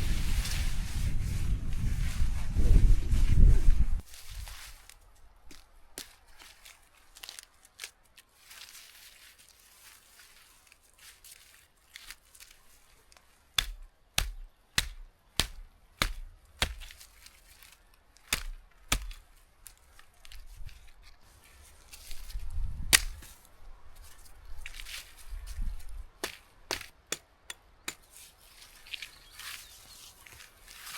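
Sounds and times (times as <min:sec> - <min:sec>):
chopping strikes on wood: 0:13.6 - 0:17.0, 0:18.3 - 0:19.2, 0:22.9 - 0:23.3, 0:26.2 - 0:28.1.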